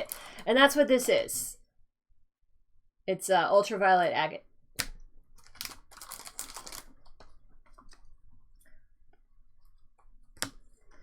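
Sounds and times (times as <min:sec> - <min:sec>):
trading cards rustling: 0:05.3 - 0:08.2.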